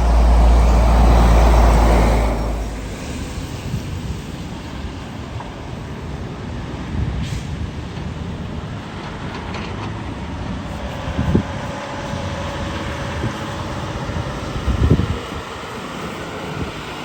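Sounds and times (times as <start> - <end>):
steady engine tone: 0.0 - 4.9
heavy trucks passing: 0.0 - 17.0.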